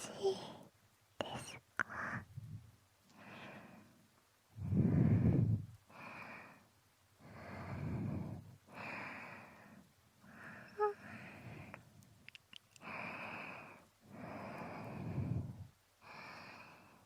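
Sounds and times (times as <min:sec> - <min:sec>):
slow close breathing: 0:01.8 - 0:04.0, 0:04.6 - 0:12.0, 0:12.8 - 0:17.0.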